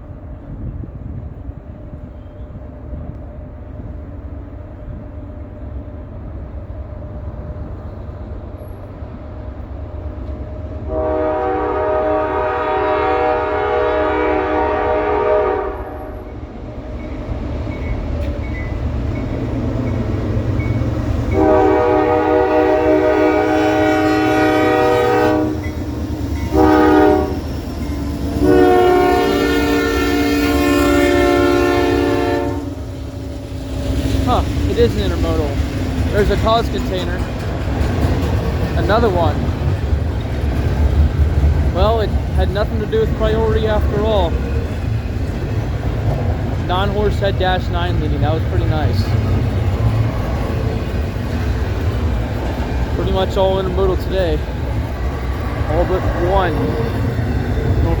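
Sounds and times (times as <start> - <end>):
low rumble of train: 0.0 - 58.0
locomotive air horn blasts: 10.9 - 16.3, 21.3 - 25.8, 26.4 - 27.5, 28.3 - 33.0.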